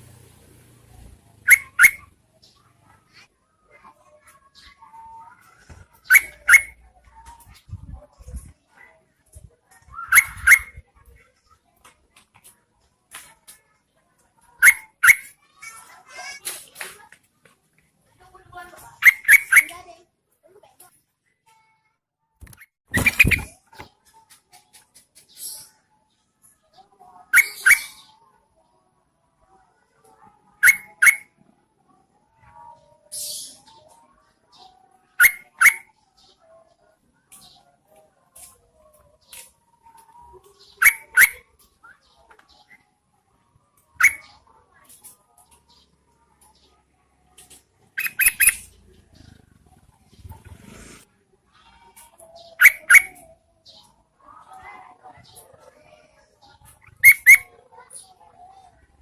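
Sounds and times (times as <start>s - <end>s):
faint bird chatter: 0.8s - 59.0s
bird calling sharp notes: 1.4s - 2.1s, 6.0s - 6.8s, 10.0s - 10.8s, 19.0s - 19.8s, 48.0s - 48.8s, 52.6s - 53.2s
bird harsh rasp: 1.5s - 2.1s, 6.0s - 6.8s, 10.0s - 10.8s, 19.0s - 19.8s, 22.9s - 23.6s, 27.3s - 28.1s, 30.6s - 31.3s, 40.8s - 41.4s, 44.0s - 45.2s, 48.0s - 48.7s, 50.2s - 51.1s, 56.7s - 57.5s.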